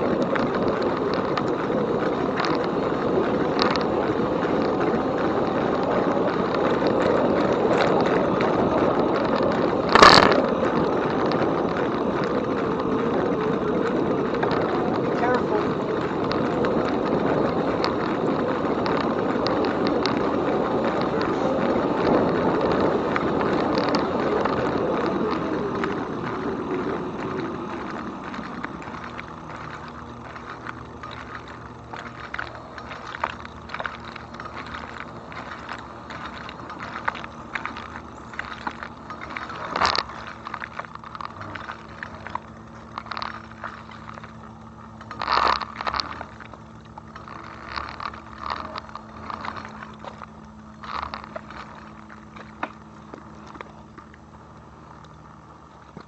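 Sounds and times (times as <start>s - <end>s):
bicycle knocks: 0.0s - 54.1s
bicycle clicks and rattles: 0.0s - 56.0s
wind and tyre noise: 0.0s - 56.0s.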